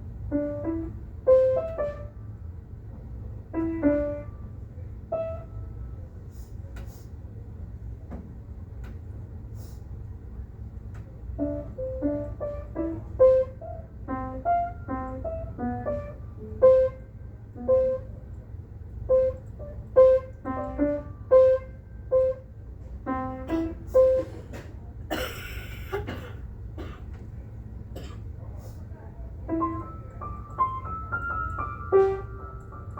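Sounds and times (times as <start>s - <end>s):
steady low hum: 0.0s - 32.9s
simple keyboard tune: 0.2s - 2.3s, 3.5s - 5.9s, 11.4s - 18.3s, 19.0s - 24.2s, 29.5s - 32.9s.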